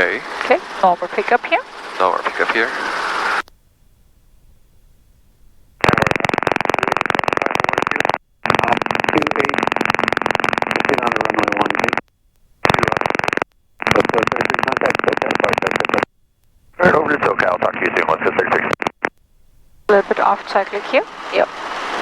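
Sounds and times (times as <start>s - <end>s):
muffled radio noise bursts: 0.0s - 3.4s, 5.8s - 12.0s, 12.6s - 16.1s, 16.8s - 19.1s, 19.9s - 22.0s.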